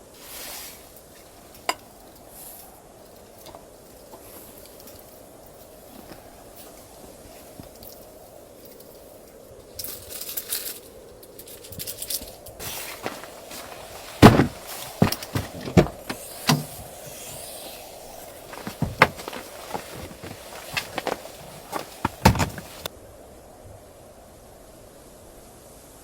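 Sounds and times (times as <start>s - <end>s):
crackling rustle: 0.0s - 22.9s
objects knocking and clattering: 12.6s - 17.1s, 18.4s - 22.9s.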